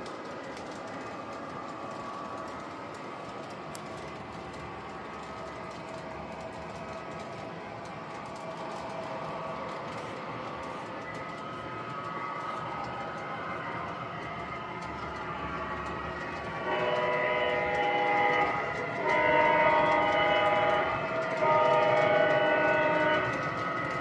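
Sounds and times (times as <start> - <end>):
locomotive horn blasts: 16.4 - 24.0.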